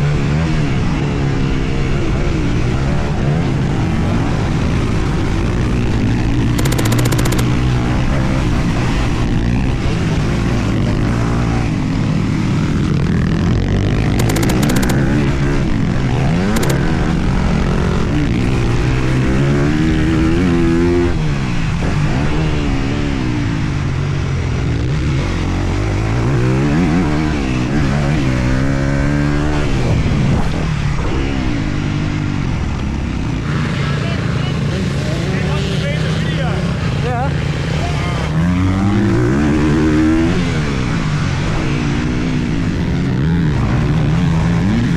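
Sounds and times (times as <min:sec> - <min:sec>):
motocross bike engine revving: 0:01.7 - 0:23.4, 0:33.3 - 0:44.9.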